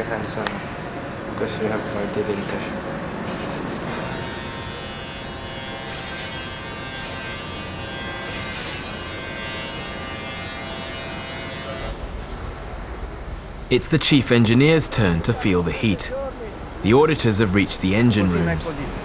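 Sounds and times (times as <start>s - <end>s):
electric hair clippers buzzing: 3.9s - 12.0s.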